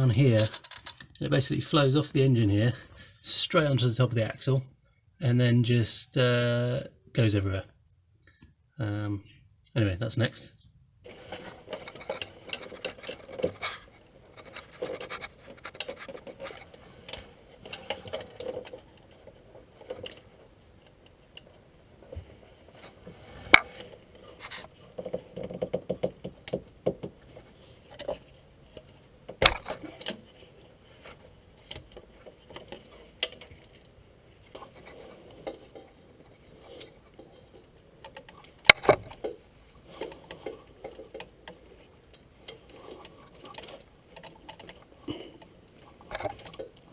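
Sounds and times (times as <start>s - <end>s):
metal hand tools clinking: 0.0s - 1.2s.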